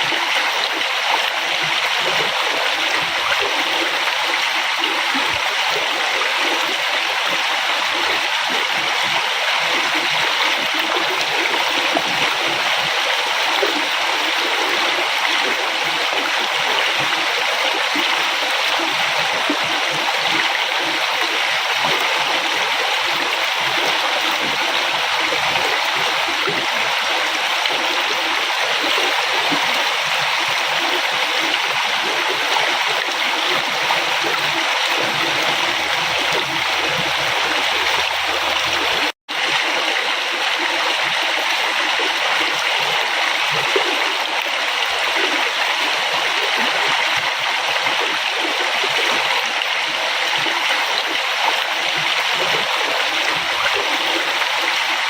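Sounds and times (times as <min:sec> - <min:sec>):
river water rushing and gurgling: 0:00.0 - 0:55.0.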